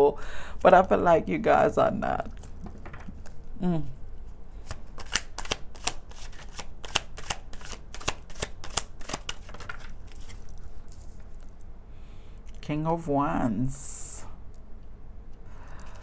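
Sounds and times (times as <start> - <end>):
cards being shuffled: 4.6 - 11.6.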